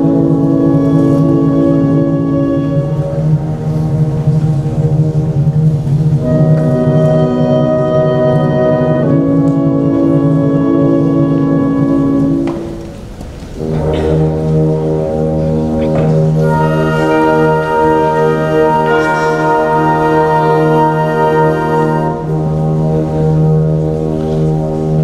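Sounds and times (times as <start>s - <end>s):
brass band playing slow chords: 0.0s - 25.0s.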